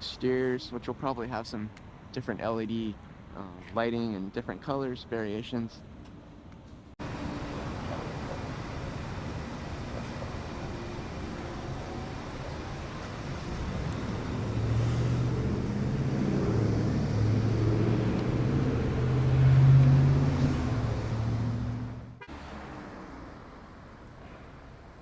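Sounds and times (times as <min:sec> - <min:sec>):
traffic hum: 0:00.0 - 0:25.0
motor vehicle driving past: 0:07.0 - 0:25.0.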